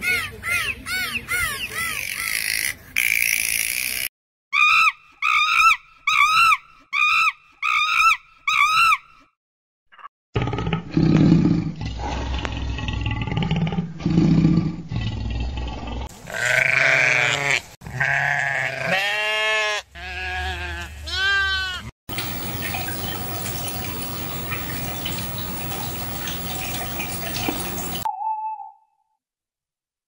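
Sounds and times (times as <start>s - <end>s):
alligators growling: 10.4s - 16.1s
sheep bleating: 16.2s - 21.9s.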